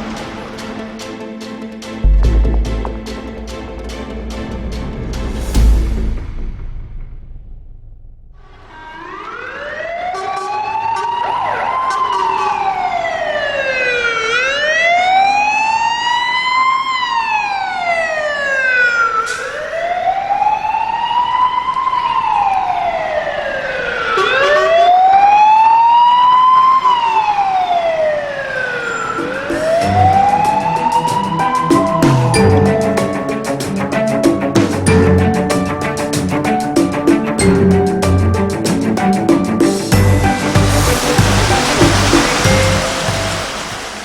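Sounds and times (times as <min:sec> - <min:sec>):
fire engine siren wailing: 0:08.6 - 0:34.2, 0:37.4 - 0:44.0.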